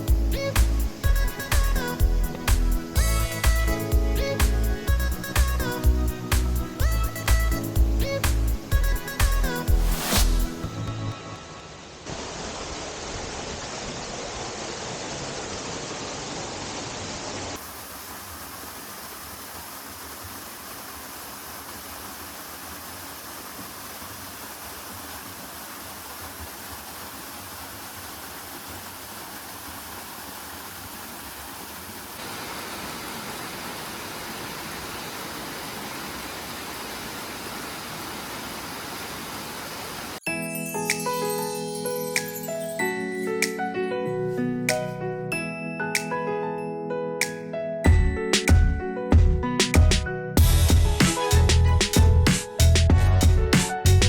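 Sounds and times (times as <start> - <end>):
waterfall roaring: 11.5 - 40.2.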